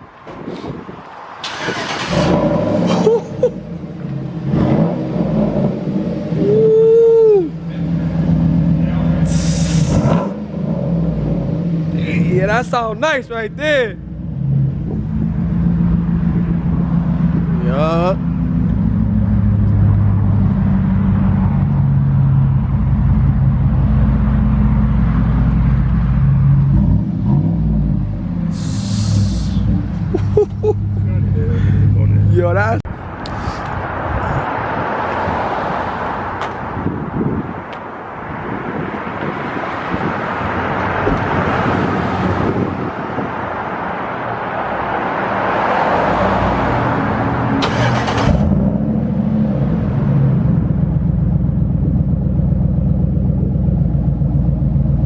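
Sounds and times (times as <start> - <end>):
engine through open exhaust: 14.0 - 33.8, 47.1 - 55.0
loud engine idling drone: 28.5 - 29.7.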